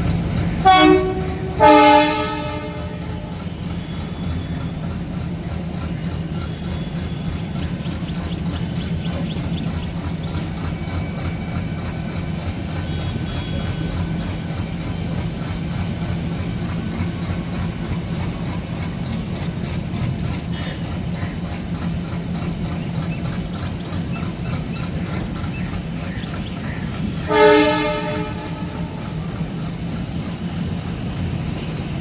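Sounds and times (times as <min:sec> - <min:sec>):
train rumbling: 0:00.0 - 0:32.0
train horn blast: 0:00.6 - 0:04.2, 0:12.6 - 0:15.0, 0:27.0 - 0:29.6.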